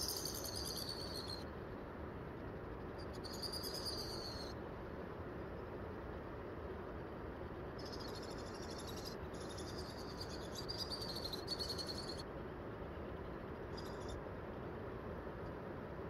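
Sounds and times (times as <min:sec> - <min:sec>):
small bird high trill: 0:00.0 - 0:01.4, 0:03.0 - 0:04.6, 0:07.8 - 0:12.2, 0:13.7 - 0:14.2
steady background hiss: 0:00.0 - 0:16.0.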